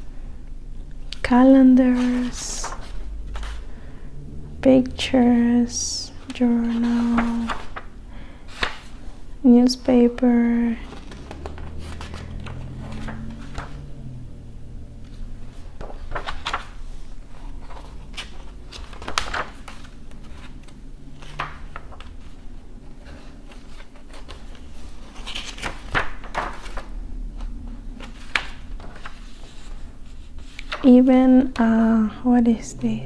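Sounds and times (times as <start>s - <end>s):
book pages turning: 1.8s - 3.8s, 5.3s - 9.4s, 10.3s - 14.2s, 15.0s - 31.8s
dry paper rustling: 1.8s - 3.9s, 6.3s - 9.3s, 10.3s - 13.9s, 15.0s - 31.1s.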